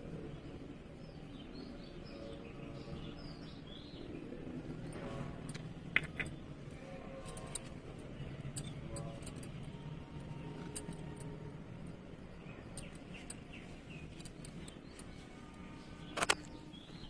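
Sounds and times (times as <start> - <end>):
sharp clicks: 16.1 - 16.6.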